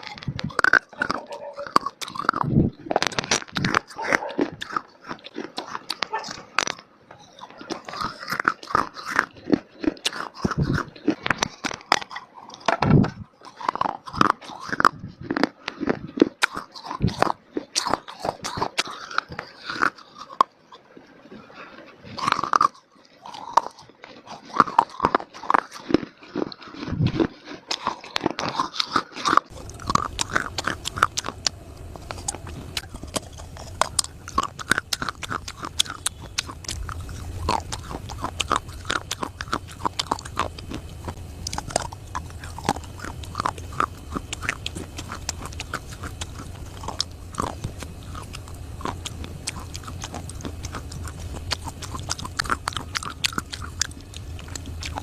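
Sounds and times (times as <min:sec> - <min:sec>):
biting and chewing brittle clay: 0:00.0 - 0:55.0
low hum: 0:29.5 - 0:55.0.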